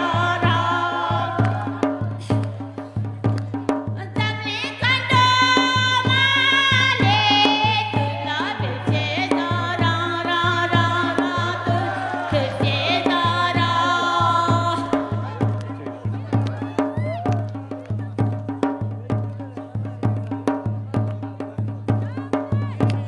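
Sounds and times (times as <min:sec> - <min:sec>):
person singing folk song: 0:00.0 - 0:02.2, 0:04.0 - 0:15.6
fast beat: 0:00.0 - 0:23.0.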